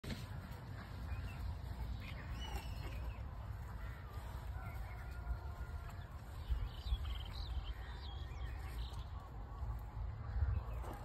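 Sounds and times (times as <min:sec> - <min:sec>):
faint bird chirps: 0:00.8 - 0:09.4.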